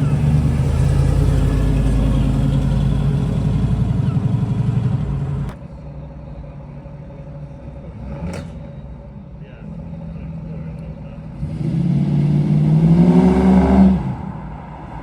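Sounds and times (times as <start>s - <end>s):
car engine running: 0.0s - 11.8s
quiet engine hum: 0.0s - 11.8s.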